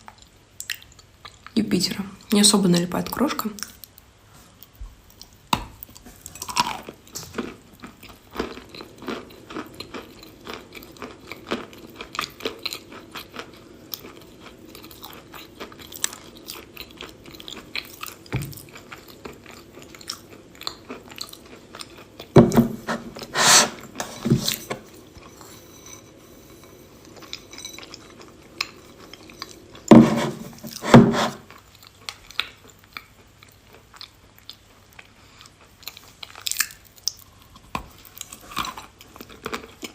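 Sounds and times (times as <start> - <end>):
person chewing crunchy chalk: 6.0 - 25.6.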